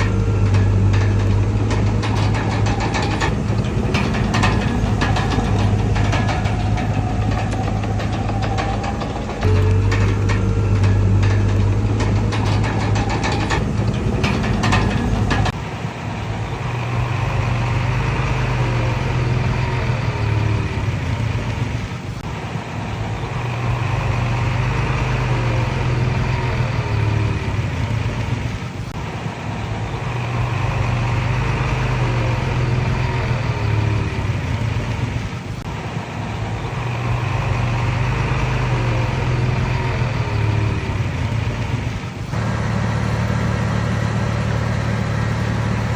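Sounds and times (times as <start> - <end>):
short gliding squeals: 0.0 - 15.6
metal clanks: 0.0 - 15.9, 17.1 - 22.4, 37.0 - 45.9
bulldozer diesel engine running: 0.0 - 45.9.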